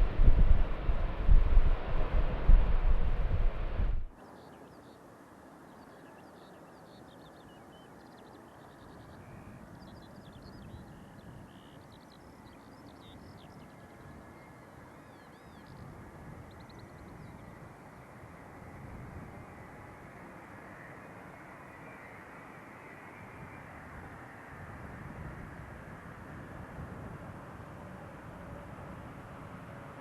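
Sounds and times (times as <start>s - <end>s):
loud rushing roar: 0.0s - 4.1s.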